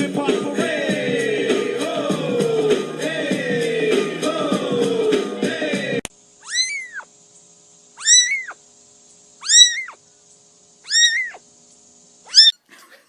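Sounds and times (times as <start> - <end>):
cat meowing: 6.4 - 7.1, 8.0 - 8.6, 9.4 - 10.0, 10.9 - 11.4, 12.3 - 12.6.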